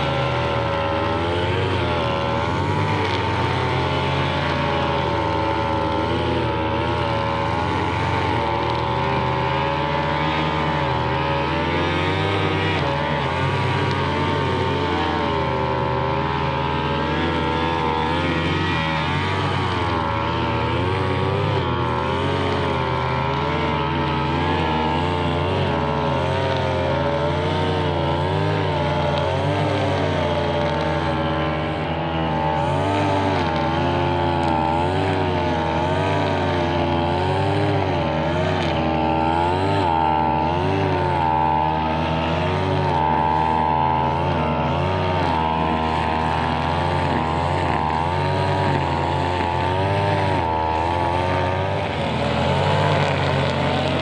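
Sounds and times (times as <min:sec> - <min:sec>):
brushcutter engine trimming grass: 0:00.0 - 0:54.0.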